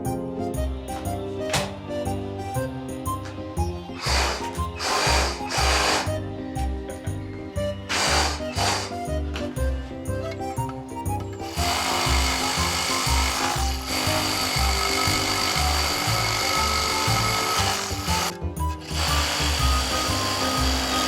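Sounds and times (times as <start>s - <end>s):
background music with beat: 0.0s - 21.0s
saw cutting wood: 4.0s - 6.2s, 7.9s - 9.1s, 11.4s - 21.0s.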